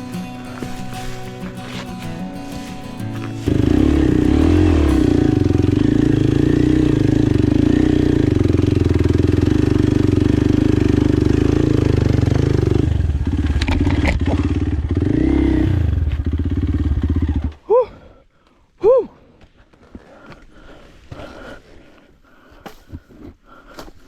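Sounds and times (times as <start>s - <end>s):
motorbike engine running: 0.0s - 17.6s.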